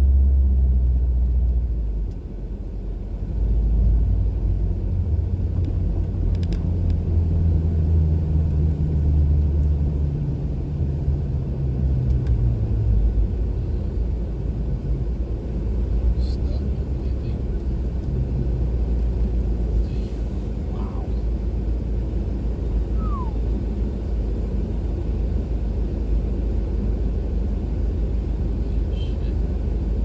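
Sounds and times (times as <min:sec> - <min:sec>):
car engine low rumble: 0:00.0 - 0:30.0.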